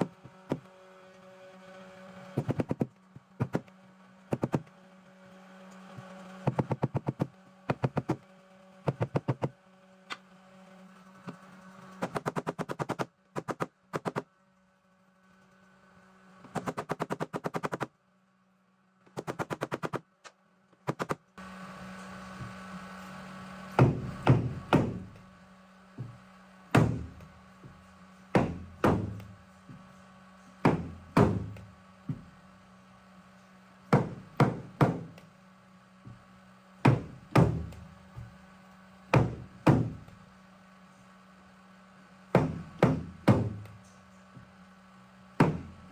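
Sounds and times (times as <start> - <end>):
steady low hum: 20.8 - 45.9
heavier ringing knocks on metal: 26.8 - 27.8, 28.4 - 29.8, 30.7 - 32.3, 34.0 - 35.2, 36.9 - 38.3, 39.2 - 40.1, 42.4 - 43.7.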